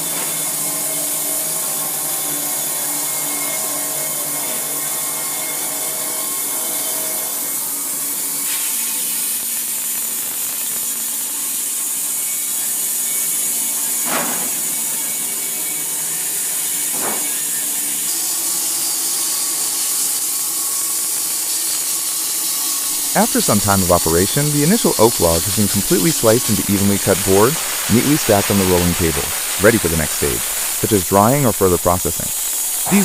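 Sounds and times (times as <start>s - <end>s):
bandsaw cutting log: 16.8s - 33.0s.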